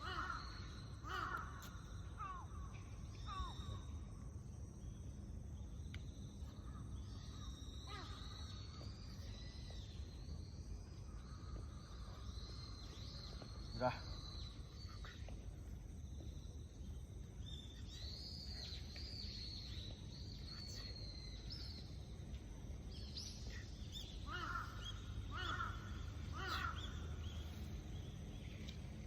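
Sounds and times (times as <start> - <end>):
low background rumble: 0.0 - 29.0
high gliding bird calls: 6.5 - 10.4, 23.0 - 28.7
lower bird calls: 23.0 - 28.8.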